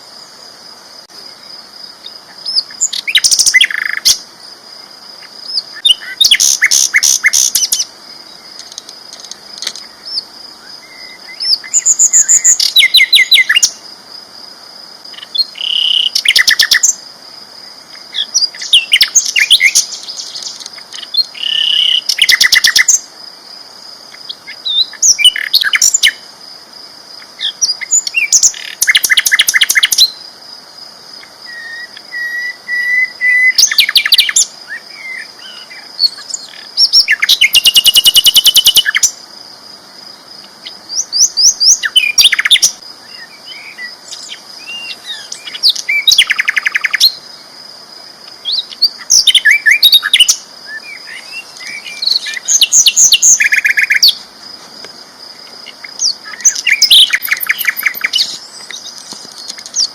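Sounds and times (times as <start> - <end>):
bird chips and trills: 35.1 - 39.1, 55.6 - 59.9.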